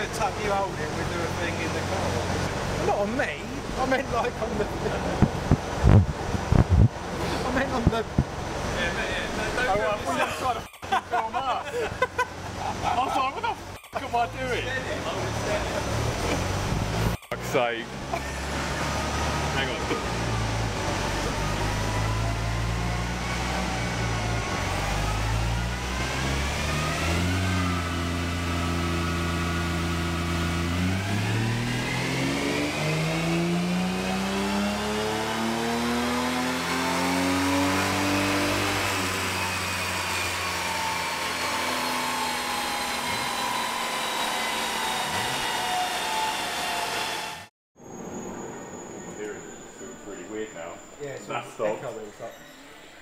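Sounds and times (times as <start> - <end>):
car engine revving: 13.6 - 47.5.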